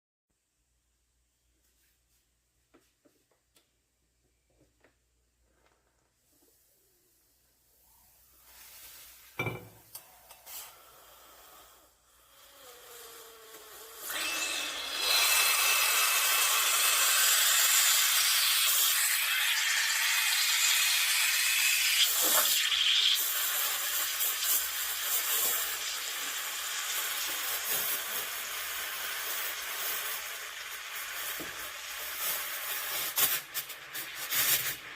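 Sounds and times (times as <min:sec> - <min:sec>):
steam wand hissing: 0:10.0 - 0:34.9.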